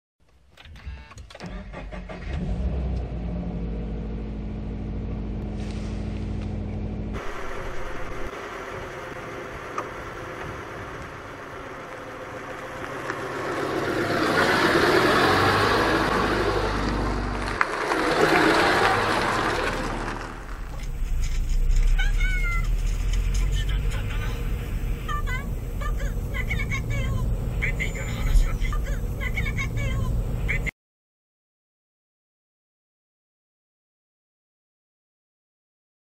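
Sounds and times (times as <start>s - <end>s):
car engine cranking and idling: 0.3s - 30.7s
car passing by: 7.2s - 22.0s.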